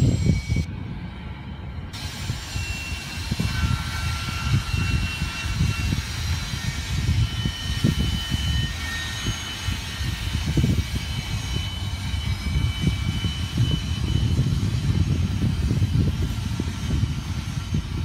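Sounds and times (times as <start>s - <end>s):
faint high squeals: 0.0s - 18.0s
freight train rumbling past: 0.0s - 18.0s.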